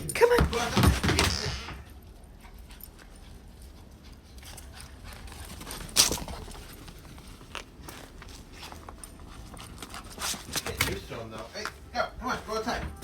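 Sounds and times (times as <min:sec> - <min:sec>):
booted dog feet tapping on floor: 0:00.2 - 0:01.9.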